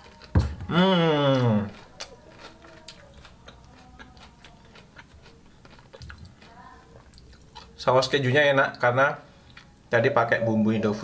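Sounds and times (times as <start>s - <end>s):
chewing crispy fried food: 0.0s - 10.0s.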